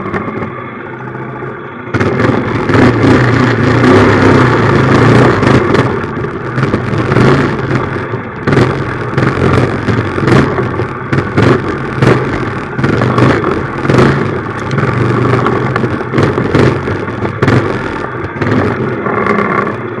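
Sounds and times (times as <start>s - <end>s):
minibike engine revving: 2.0s - 20.0s.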